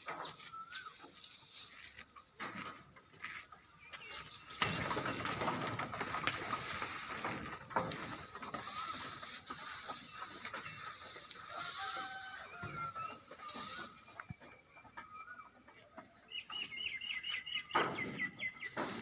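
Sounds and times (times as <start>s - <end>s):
rattling and clattering: 4.5s - 11.3s.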